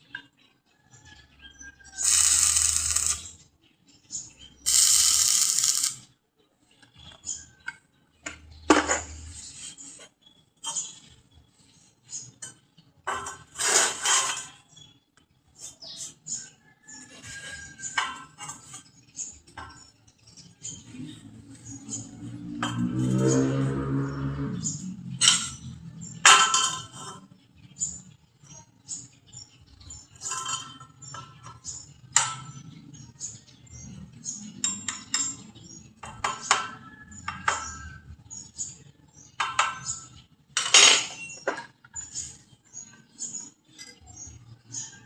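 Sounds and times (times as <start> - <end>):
metal clinking and scraping: 1.8 - 3.4, 4.7 - 6.1, 12.1 - 14.9, 25.2 - 27.3, 29.8 - 32.6, 39.4 - 45.0
harsh noise bursts: 2.0 - 3.3, 4.7 - 6.0.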